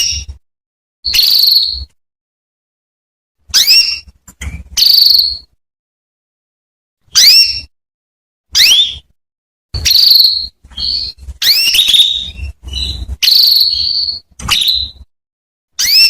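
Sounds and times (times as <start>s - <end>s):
canary whistled calls: 0.0s - 0.3s, 1.0s - 2.0s, 3.5s - 4.1s, 4.8s - 5.5s, 7.1s - 7.7s, 8.5s - 9.1s, 9.8s - 15.1s, 15.8s - 16.0s.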